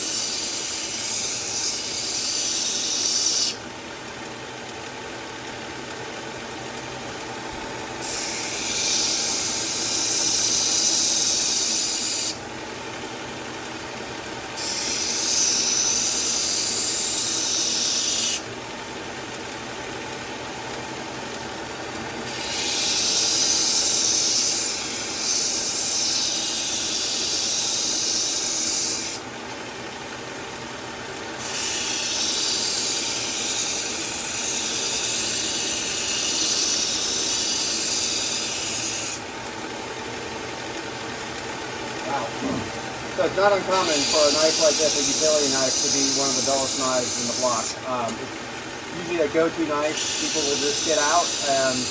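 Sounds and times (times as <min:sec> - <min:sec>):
knife blade grinding: 0:00.0 - 0:03.6, 0:08.0 - 0:12.4, 0:14.6 - 0:18.4, 0:22.3 - 0:29.2, 0:31.4 - 0:39.2, 0:43.7 - 0:48.1, 0:49.8 - 0:51.9
knife sharpener motor running: 0:00.0 - 0:51.9.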